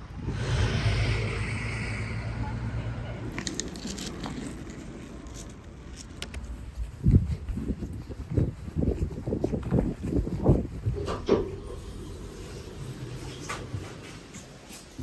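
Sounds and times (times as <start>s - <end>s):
vehicle passing: 0.0s - 7.4s.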